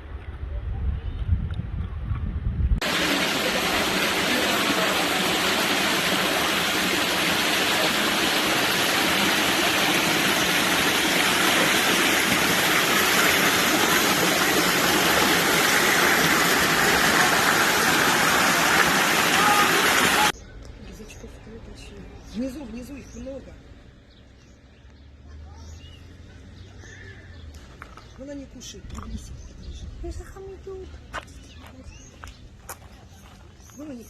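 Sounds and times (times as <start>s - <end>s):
waterfall roaring: 2.8s - 20.3s.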